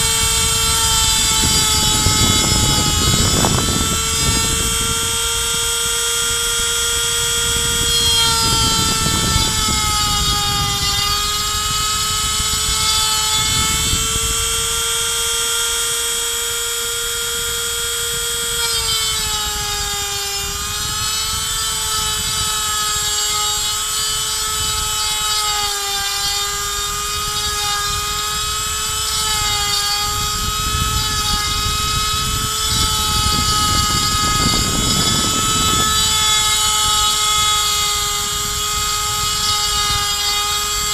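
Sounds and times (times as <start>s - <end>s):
bit cutting wood: 0.0s - 40.9s
rotary tool high whine: 0.0s - 40.9s.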